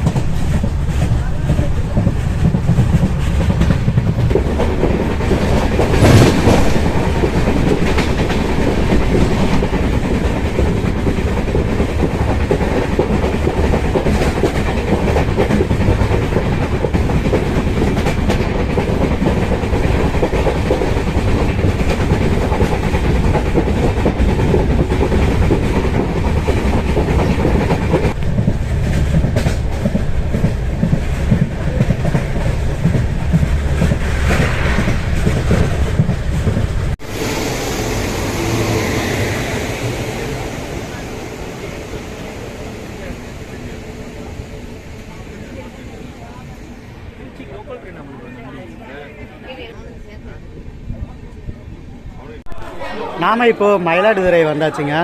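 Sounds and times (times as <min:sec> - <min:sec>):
wheels clacking over rail joints: 0:00.0 - 0:37.0
train rumbling on track: 0:00.0 - 0:55.0.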